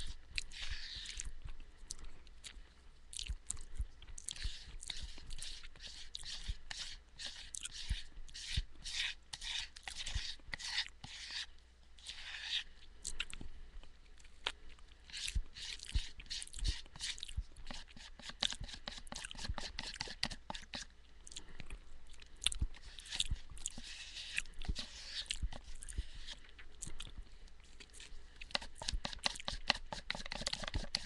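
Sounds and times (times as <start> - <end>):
spoon scraping plastic tub: 0.0 - 1.3, 4.3 - 12.6, 22.8 - 26.5, 28.4 - 31.0.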